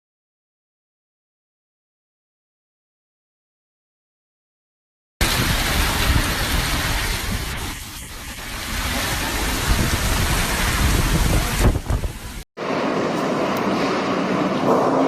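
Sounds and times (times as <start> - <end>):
storm rushing noise: 5.2 - 15.0.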